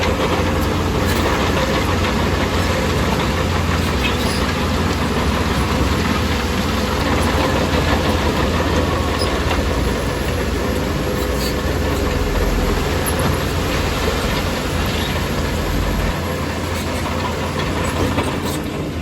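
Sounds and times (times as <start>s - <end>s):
bulldozer diesel engine droning: 0.0s - 19.0s.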